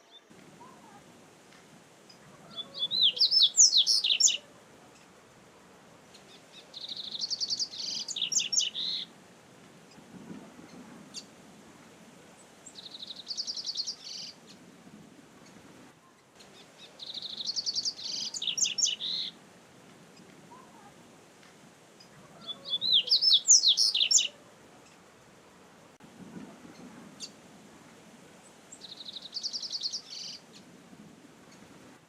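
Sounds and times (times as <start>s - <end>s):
bird chirping song: 2.1s - 5.1s, 6.1s - 9.1s, 12.6s - 14.6s, 15.4s - 19.4s, 22.0s - 25.0s, 28.7s - 30.7s.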